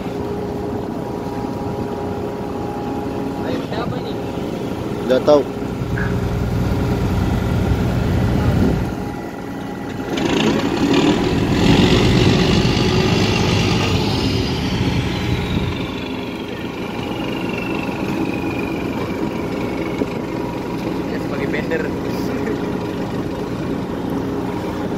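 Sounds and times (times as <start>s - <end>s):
ship engine droning: 0.0s - 24.9s
high whine falling in pitch: 5.7s - 20.8s
rushing noise: 5.8s - 20.6s.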